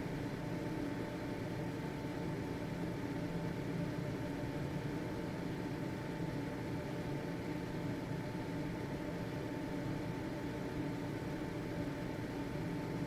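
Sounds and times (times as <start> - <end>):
ventilation fan running: 0.0 - 13.0.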